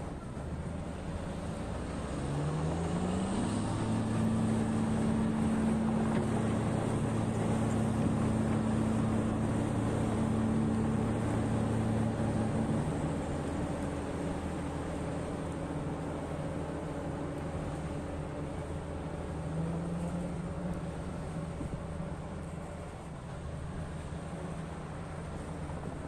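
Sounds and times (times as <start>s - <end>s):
large diesel engine revving: 1.3s - 15.4s.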